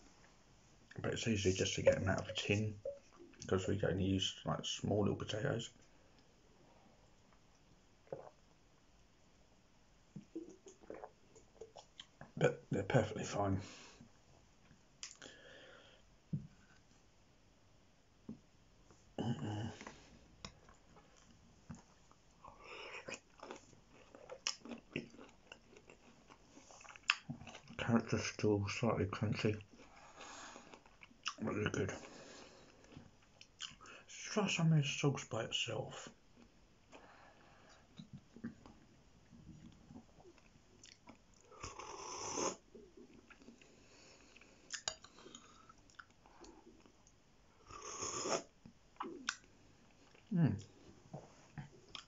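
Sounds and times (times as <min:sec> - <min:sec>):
man chewing food: 0:10.2 - 0:12.4, 0:19.6 - 0:27.8, 0:29.7 - 0:31.4, 0:36.3 - 0:52.0
chewing crunchy food: 0:22.9 - 0:27.8, 0:39.6 - 0:41.9.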